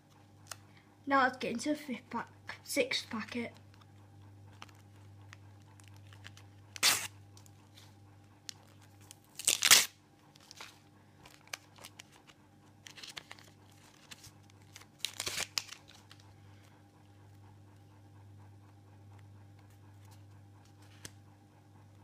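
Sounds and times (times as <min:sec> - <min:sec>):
wrapper crinkling: 0:05.7 - 0:07.1, 0:08.5 - 0:16.3
wrapper ripping open: 0:05.8 - 0:07.1, 0:09.0 - 0:16.2.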